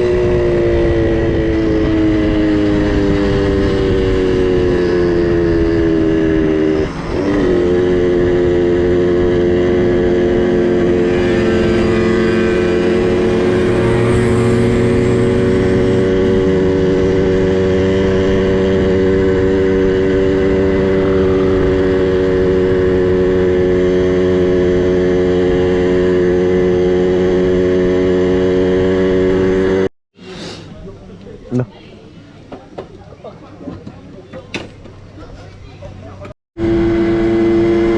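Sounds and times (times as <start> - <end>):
small two-stroke engine running: 1.9 - 24.8.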